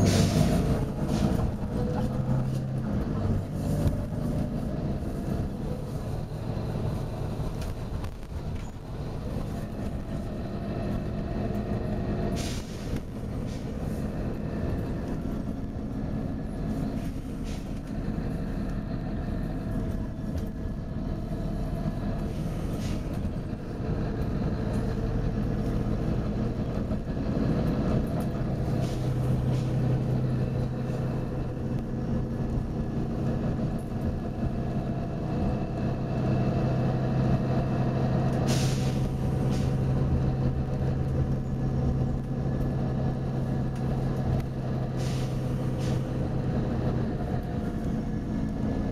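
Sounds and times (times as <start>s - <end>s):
bus diesel engine running: 0.0s - 48.9s
short air hisses: 12.3s - 13.8s, 38.5s - 39.8s, 45.0s - 46.0s.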